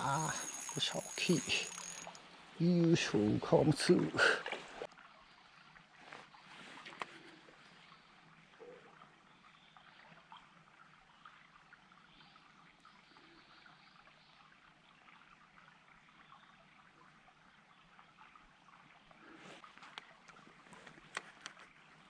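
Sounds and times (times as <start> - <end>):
stream babbling over rocks: 0.0 - 4.9.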